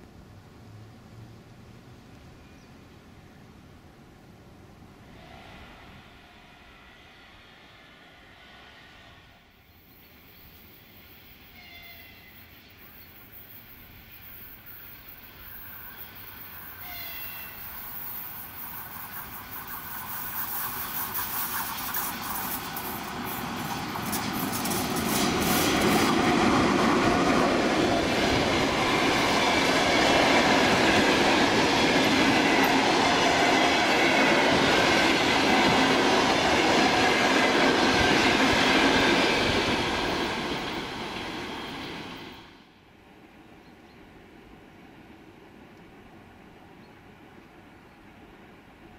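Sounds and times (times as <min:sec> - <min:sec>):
train wheel and rail noise: 0:00.0 - 0:48.9.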